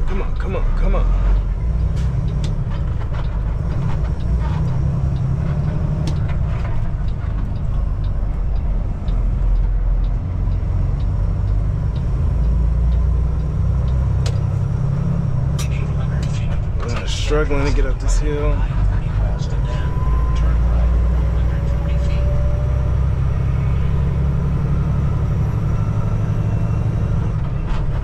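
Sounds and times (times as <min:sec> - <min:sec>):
truck diesel engine lugging: 0:00.0 - 0:28.0
light regular ticking: 0:00.1 - 0:18.6.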